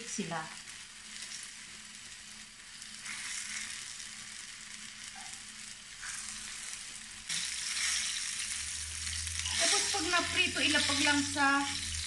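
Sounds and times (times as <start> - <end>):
tofu sizzling in hot oil: 0.0 - 12.0.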